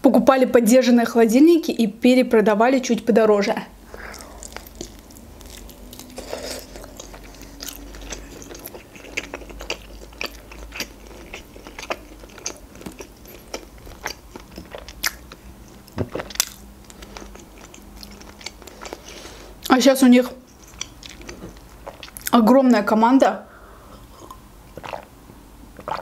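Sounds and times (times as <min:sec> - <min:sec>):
chewing with wet mouth smacks: 0:04.0 - 0:19.8, 0:20.5 - 0:22.4.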